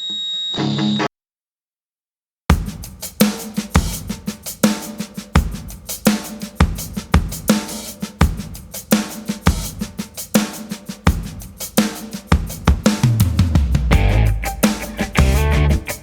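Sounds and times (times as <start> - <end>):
drum kit playing rock beat: 2.5 - 16.0.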